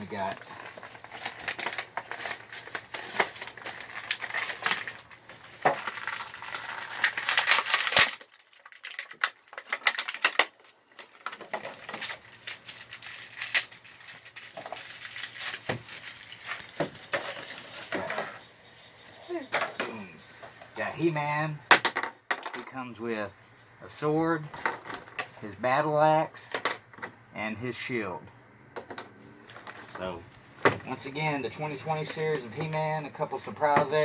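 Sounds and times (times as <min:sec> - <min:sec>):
plastic packaging crinkling: 0:00.1 - 0:18.1
plastic parts clicking and rattling: 0:00.2 - 0:18.3, 0:21.7 - 0:22.7, 0:24.5 - 0:25.4.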